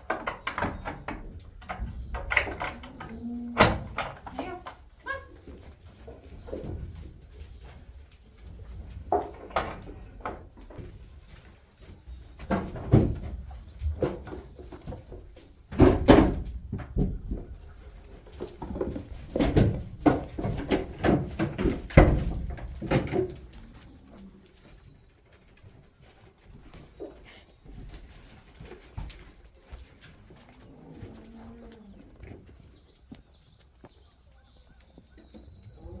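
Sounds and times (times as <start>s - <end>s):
knocks bangs and clatters: 15.7s - 17.4s, 18.5s - 23.4s.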